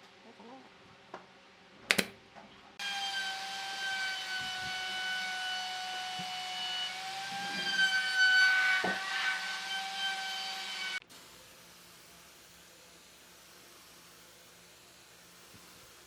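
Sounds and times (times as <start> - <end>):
sharp click: 1.9 - 2.2.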